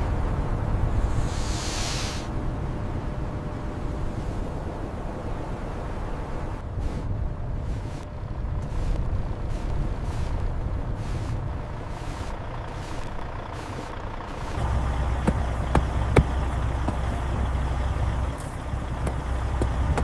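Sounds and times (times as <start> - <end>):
truck diesel engine rumbling: 0.0 - 20.0
hiss bursts: 1.0 - 2.3.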